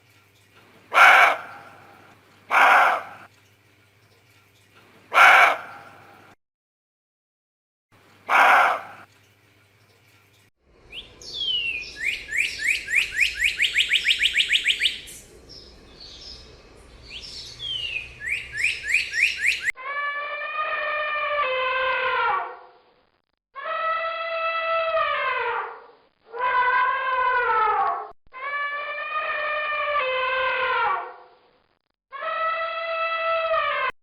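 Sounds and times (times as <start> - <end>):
long pitched animal call: 8.3 - 9.0, 19.7 - 22.6, 23.6 - 31.2, 32.1 - 33.9
songbird whistling: 10.9 - 15.2, 17.1 - 19.8.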